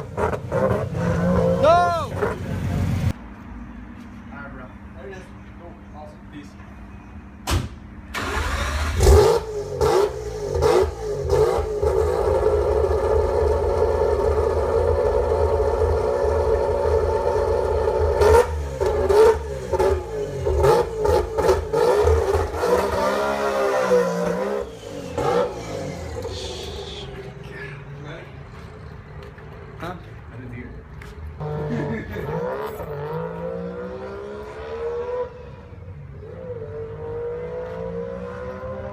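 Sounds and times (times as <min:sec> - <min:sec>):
rotary engine revving: 0:08.2 - 0:27.4.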